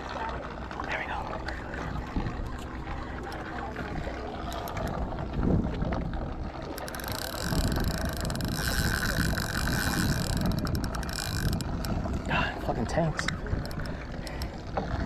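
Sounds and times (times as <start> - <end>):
boat engine rumble: 0.0 - 15.0
wind on microphone: 0.9 - 15.0
fishing reel whirring: 2.4 - 5.0, 6.5 - 12.2, 13.4 - 14.6.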